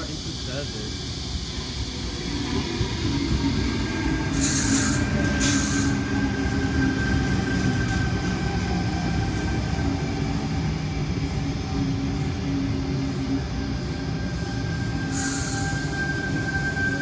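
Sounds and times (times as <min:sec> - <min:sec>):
electric train running noise: 0:00.0 - 0:17.0
air hiss bursts: 0:04.3 - 0:06.0, 0:15.1 - 0:16.2.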